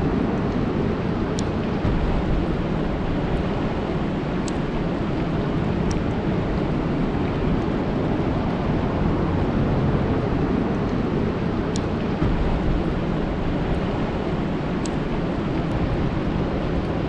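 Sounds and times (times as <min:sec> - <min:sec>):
rain falling on a lake: 0:01.0 - 0:17.0
faint sharp ticks: 0:04.4 - 0:04.7.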